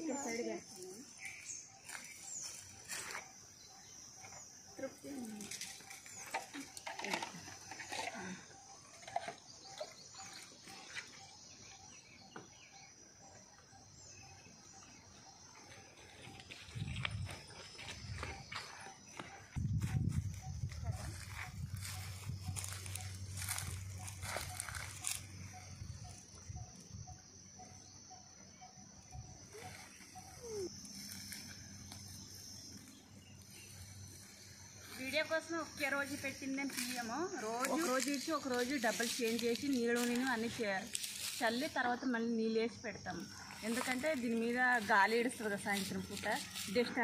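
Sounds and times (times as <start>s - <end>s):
faint birdsong chirps: 0.0s - 47.0s
high insect drone: 0.0s - 47.0s.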